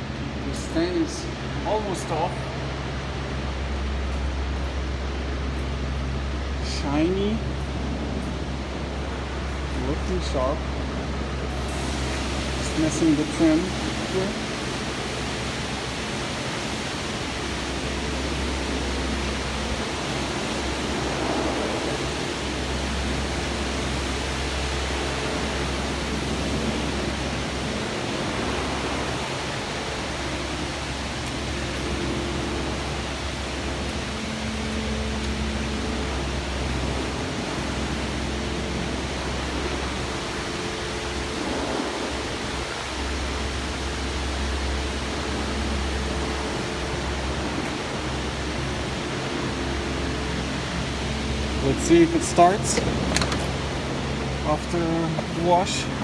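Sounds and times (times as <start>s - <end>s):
pressure washer motor hum: 0.0s - 56.0s
water jet spraying: 11.5s - 56.0s.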